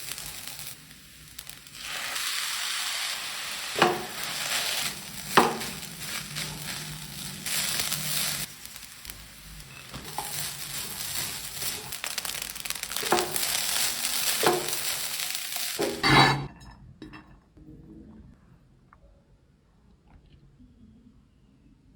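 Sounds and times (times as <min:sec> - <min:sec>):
rice sizzling in a pan: 0:00.0 - 0:16.0
spatula knocking: 0:03.8 - 0:04.5, 0:05.1 - 0:06.8.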